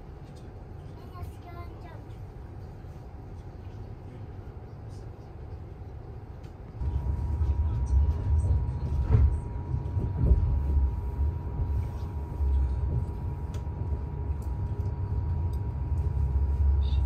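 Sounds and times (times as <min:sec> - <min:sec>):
train rumbling inside carriage: 0:00.0 - 0:17.0
faint steady whine: 0:06.8 - 0:17.0.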